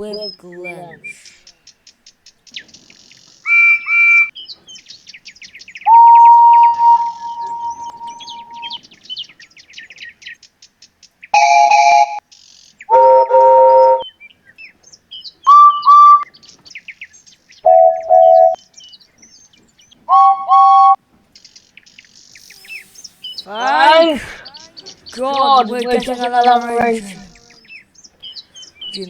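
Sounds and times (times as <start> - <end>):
birdsong: 0.0 - 29.0
deeper chime whistle: 5.9 - 8.8, 11.4 - 12.2, 12.9 - 14.0, 15.5 - 16.2, 17.7 - 18.6, 20.1 - 21.0
steam locomotive whistle: 5.9 - 8.8.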